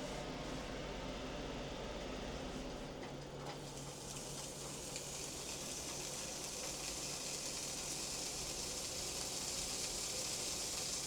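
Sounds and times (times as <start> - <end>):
bacon sizzling: 3.9 - 11.0.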